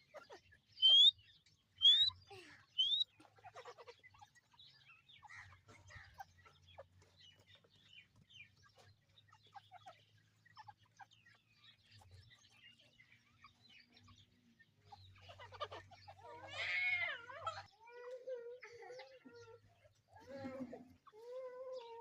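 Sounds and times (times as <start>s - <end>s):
partridges clucking and chirping: 0.0s - 22.0s.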